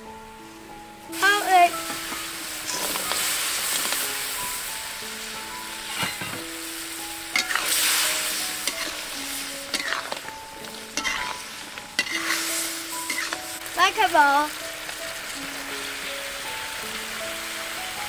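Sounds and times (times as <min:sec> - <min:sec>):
ribs sizzling in a wok: 0:00.0 - 0:18.0
soft background music: 0:00.0 - 0:18.0
metal ladle scraping a wok: 0:02.0 - 0:04.0, 0:05.8 - 0:06.4, 0:07.3 - 0:13.7.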